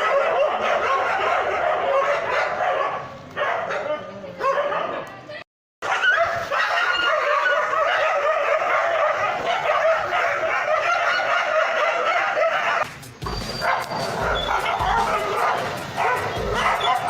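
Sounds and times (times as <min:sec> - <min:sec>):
dog whining and yelping: 0:06.0 - 0:17.0.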